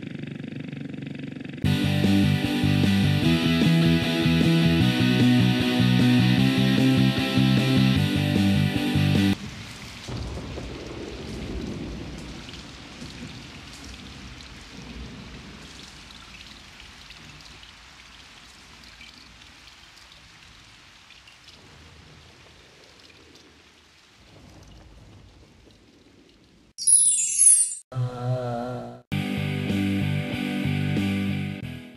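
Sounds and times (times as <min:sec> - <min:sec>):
steady rain: 0:05.8 - 0:26.8
thunder rumbling: 0:09.3 - 0:17.3, 0:21.6 - 0:26.7.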